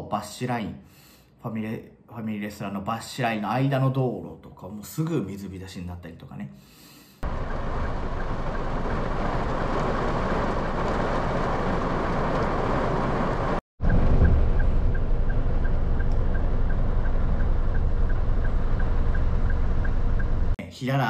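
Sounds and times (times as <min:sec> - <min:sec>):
heavy rain on car roof: 0:07.2 - 0:15.4
low rumble: 0:07.2 - 0:20.6
faint regular ticking: 0:14.6 - 0:20.6.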